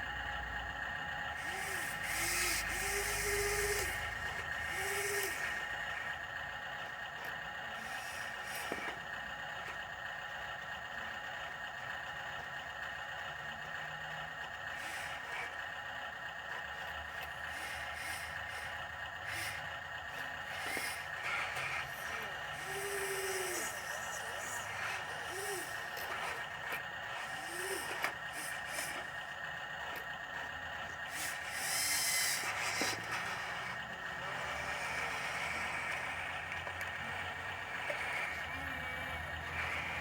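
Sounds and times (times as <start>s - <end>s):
dump truck engine running: 0.0s - 11.9s, 12.5s - 40.0s.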